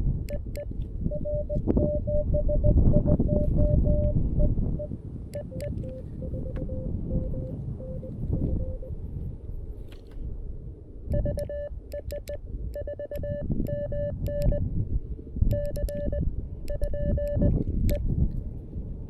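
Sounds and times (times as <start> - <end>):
wind rumble on microphone: 0.0 - 19.0
morse code beeps: 0.3 - 8.9, 11.1 - 14.7, 15.5 - 18.0.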